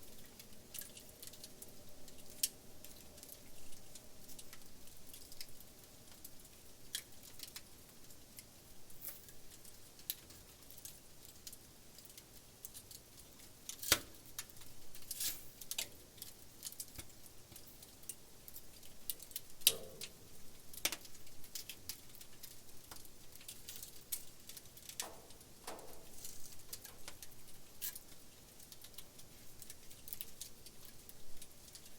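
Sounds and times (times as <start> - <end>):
campfire crackling: 0.0 - 31.9
faint hiss: 13.7 - 31.9.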